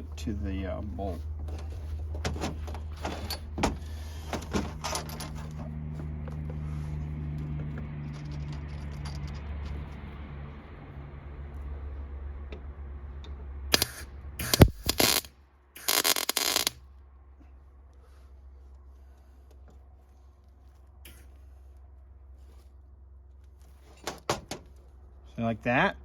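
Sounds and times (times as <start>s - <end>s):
metal parts clinking: 4.3s - 5.7s, 8.0s - 9.8s
steady low hum: 9.4s - 23.7s
mig welding bursts: 13.7s - 16.8s.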